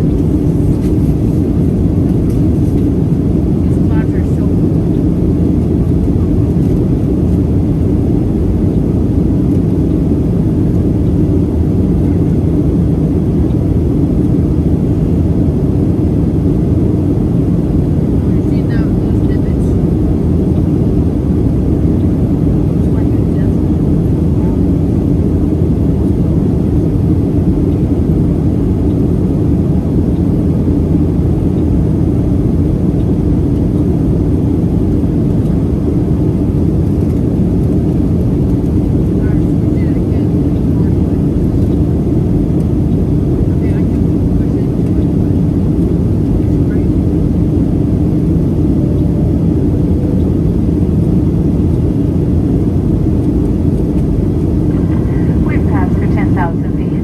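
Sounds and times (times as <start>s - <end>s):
airplane cabin engine rumble: 0.0s - 57.0s
faint steady hum: 0.0s - 57.0s.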